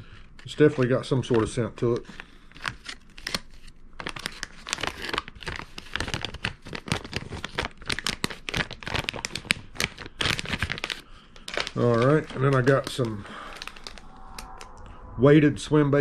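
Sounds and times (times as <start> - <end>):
plastic packaging crinkling: 2.0 - 14.0.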